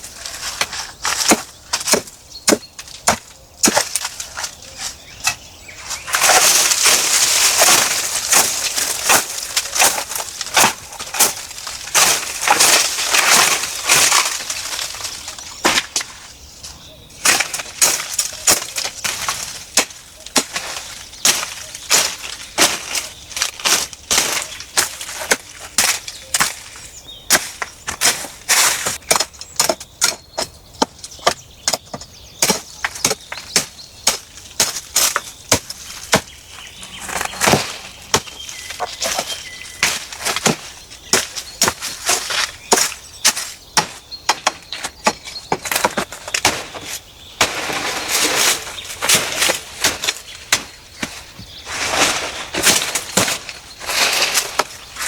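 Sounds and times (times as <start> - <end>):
dry wood crackling and snapping: 0.0 - 55.0
rustling: 3.9 - 16.3, 33.0 - 43.3, 45.6 - 55.0.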